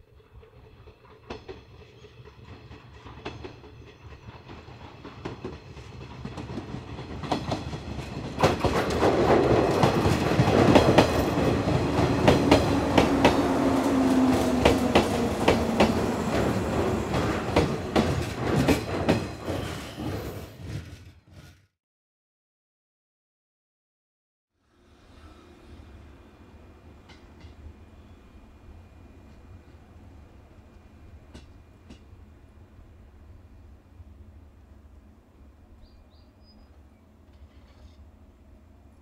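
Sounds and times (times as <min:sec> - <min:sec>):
train rumble: 0:00.0 - 0:21.6, 0:24.8 - 0:39.0
wheels clacking over rail joints: 0:00.2 - 0:21.0.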